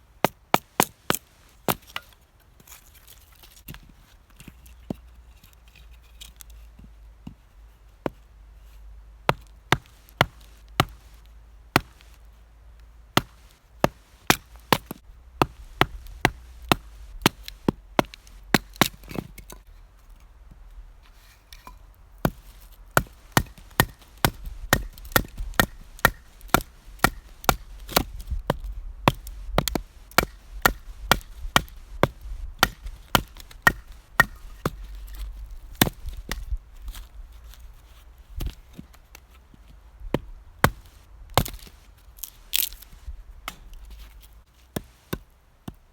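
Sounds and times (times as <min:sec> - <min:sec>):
wood chopping strikes: 0:09.3 - 0:11.2, 0:11.8 - 0:12.2, 0:13.2 - 0:19.6, 0:21.6 - 0:36.6, 0:40.1 - 0:43.9.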